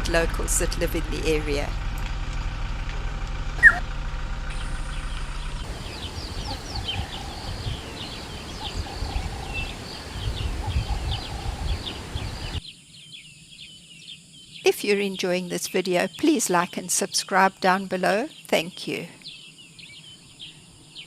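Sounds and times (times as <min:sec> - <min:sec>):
low rumbling: 0:00.0 - 0:12.6
vehicle engine idling: 0:00.0 - 0:12.6
wild birds chirping and whistling: 0:03.6 - 0:03.8, 0:04.5 - 0:14.7, 0:18.3 - 0:21.0.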